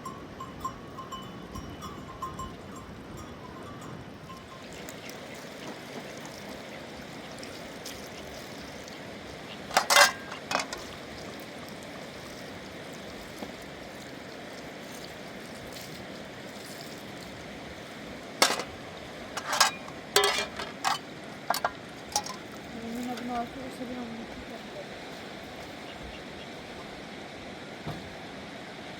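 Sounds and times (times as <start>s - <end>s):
river water rushing: 4.4s - 28.9s
metal pots and dishes clinking: 9.7s - 10.9s, 18.4s - 18.8s, 19.4s - 22.5s.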